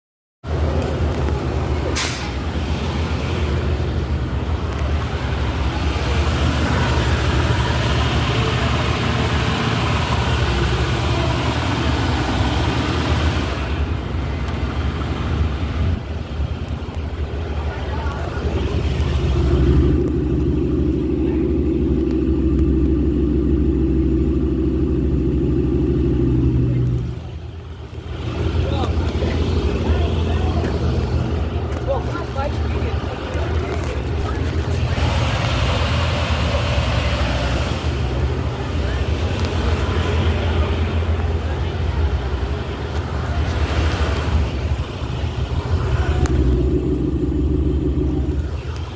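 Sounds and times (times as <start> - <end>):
vehicle engine idling: 0.4 - 48.9.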